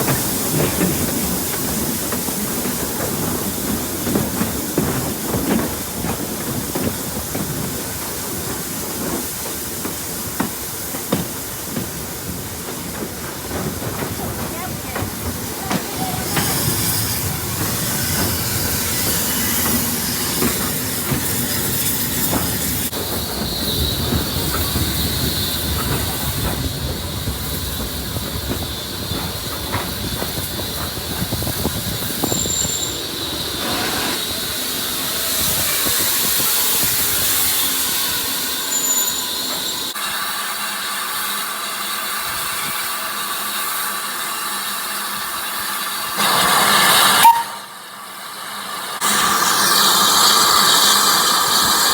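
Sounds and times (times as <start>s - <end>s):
rail clatter: 0.0s - 40.0s
steam hissing: 0.0s - 51.9s
steam train rumbling: 0.0s - 51.9s.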